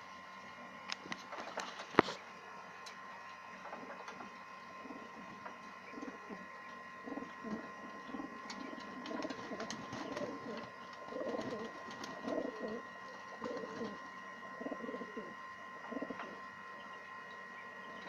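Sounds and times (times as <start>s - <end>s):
faint hum: 0.0s - 18.0s
pigeons cooing: 3.6s - 17.1s.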